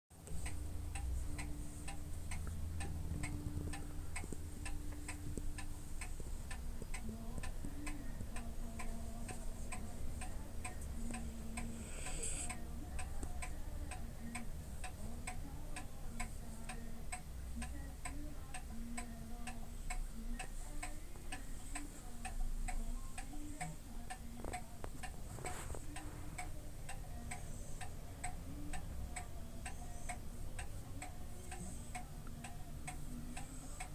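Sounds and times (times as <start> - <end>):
clock-like ticking: 0.2 - 25.2, 25.9 - 33.9
low hum: 0.3 - 13.0.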